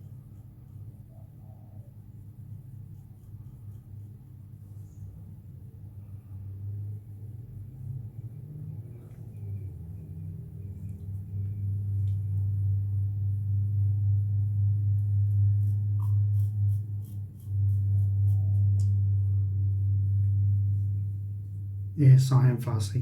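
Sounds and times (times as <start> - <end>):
steady low hum: 0.0 - 23.0
razor scraping stubble: 15.3 - 19.0.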